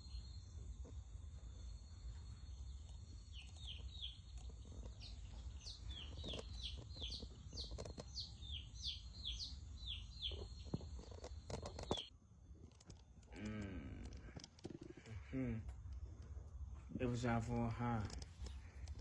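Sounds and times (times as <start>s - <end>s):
chicks peeping: 3.1s - 12.1s
low steady hum: 8.2s - 19.0s.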